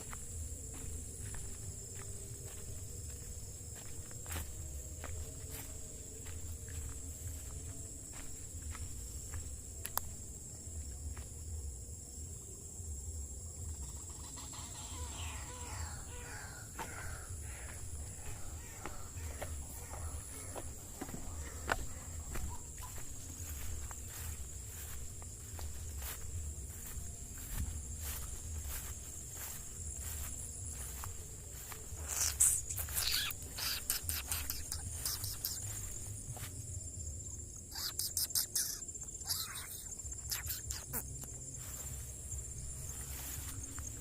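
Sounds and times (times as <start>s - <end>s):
insects chirring: 0.0s - 44.0s
descending calls: 13.9s - 23.0s, 32.0s - 36.0s, 37.6s - 41.3s.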